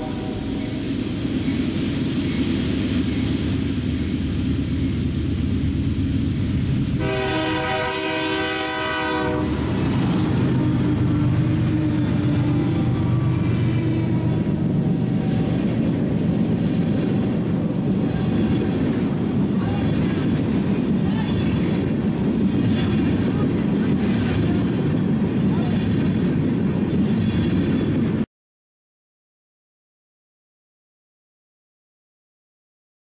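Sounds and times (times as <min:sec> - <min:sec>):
locomotive horn blast: 0:00.0 - 0:00.8, 0:07.0 - 0:12.3
diesel locomotive engine rumble: 0:00.0 - 0:28.2
freight cars rolling on rails: 0:00.0 - 0:28.2.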